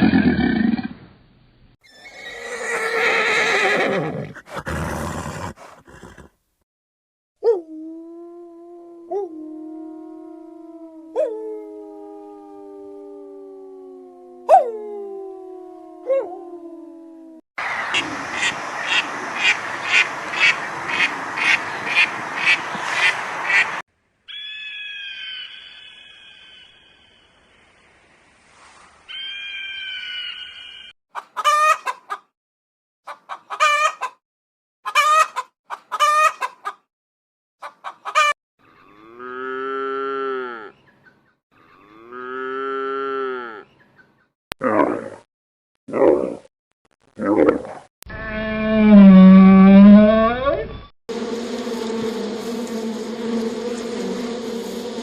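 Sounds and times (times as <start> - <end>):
animal howl: 7.4 - 17.4
short high bird calls: 24.3 - 27.3, 29.1 - 30.9.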